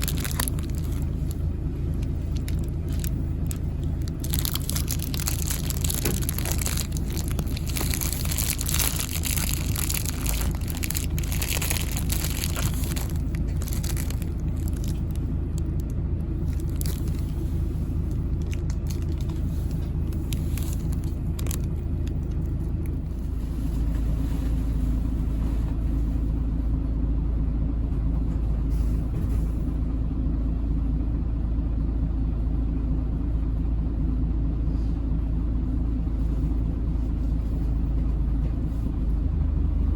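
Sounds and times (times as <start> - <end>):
dense crackling and clicking: 0.0 - 17.4, 18.0 - 23.1
bus engine and road noise: 0.0 - 39.9.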